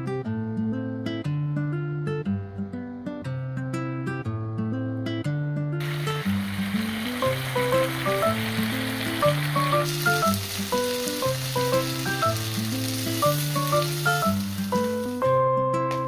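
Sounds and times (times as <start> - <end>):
food sizzling in a pan: 5.8 - 16.0
light background music: 5.8 - 16.0.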